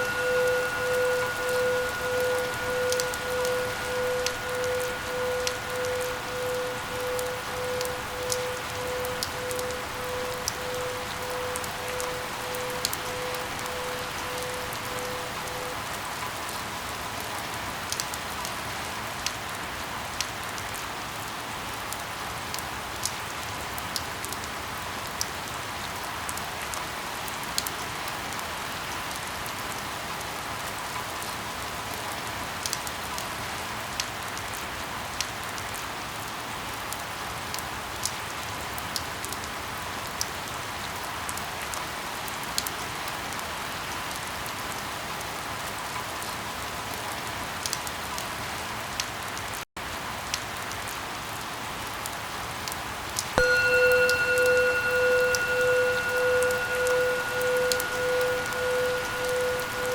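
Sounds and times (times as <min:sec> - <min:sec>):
pulsing beeps: 0:00.0 - 0:15.8, 0:53.4 - 0:59.9
sharp drip ticks: 0:00.0 - 0:15.8, 0:53.4 - 0:59.9
steady rain: 0:00.0 - 0:59.9.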